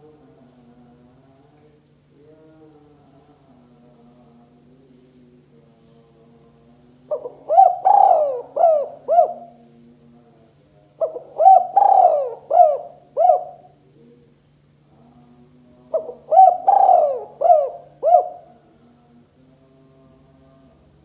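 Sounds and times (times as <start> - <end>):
dove cooing: 7.1 - 9.6, 11.0 - 13.8, 15.9 - 18.6.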